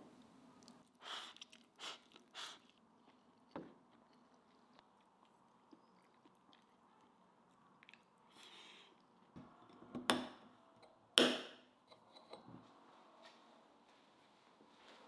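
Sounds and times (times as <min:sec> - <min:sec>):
crunchy chewing: 0:00.6 - 0:08.2.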